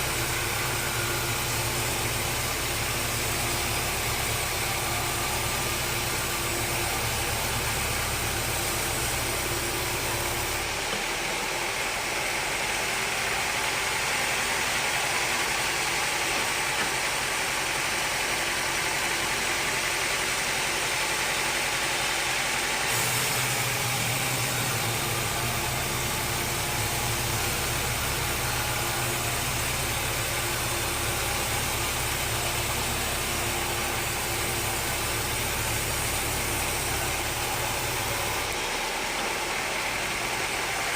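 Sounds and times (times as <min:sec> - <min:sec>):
sawmill machinery droning: 0:00.0 - 0:40.9
bright hiss: 0:22.9 - 0:40.9.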